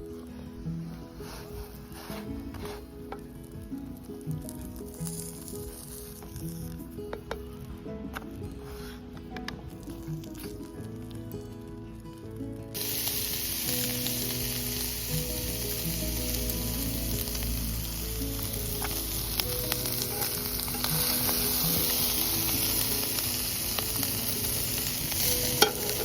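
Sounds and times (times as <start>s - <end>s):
background music: 0.0s - 26.0s
food sizzling in oil: 3.4s - 7.0s, 12.7s - 26.0s.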